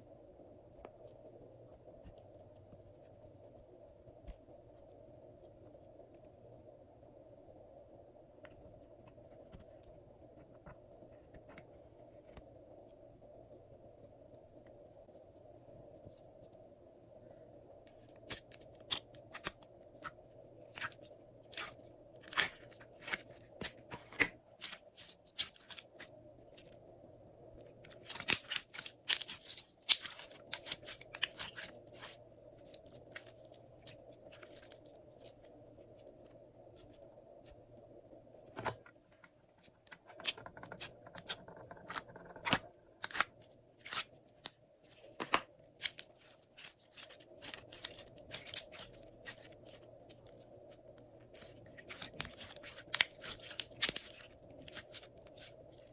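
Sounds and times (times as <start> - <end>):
slime clicking and popping: 28.0 - 32.1.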